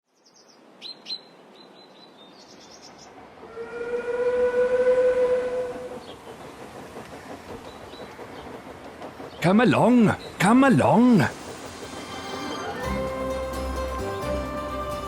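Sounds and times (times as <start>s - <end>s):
steam locomotive whistle: 3.5s - 6.0s, 12.0s - 15.0s
rushing hiss: 5.7s - 15.0s.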